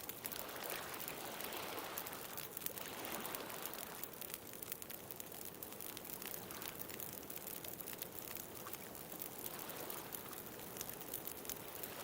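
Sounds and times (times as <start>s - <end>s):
ocean waves: 0.0s - 4.2s, 8.7s - 12.0s
bonfire crackling and popping: 0.0s - 12.0s.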